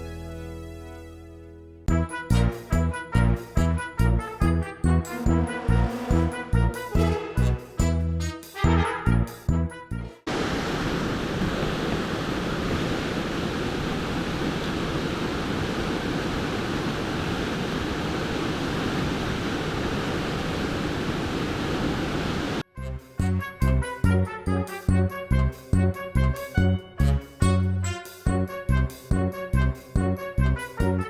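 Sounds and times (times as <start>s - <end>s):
mountain stream rushing: 10.3s - 22.6s.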